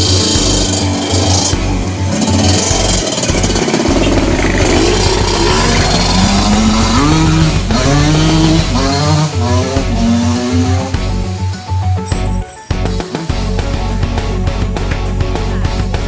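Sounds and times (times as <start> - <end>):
motorcycle engine revving: 0.0 - 14.7
background music with beat: 0.0 - 16.0.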